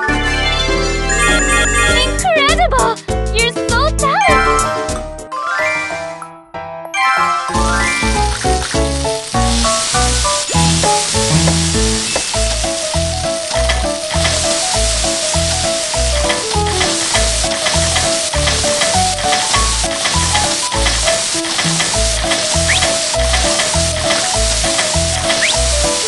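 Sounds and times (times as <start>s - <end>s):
bouncy background music: 0.0s - 26.0s
food sizzling in a pan: 7.7s - 26.0s.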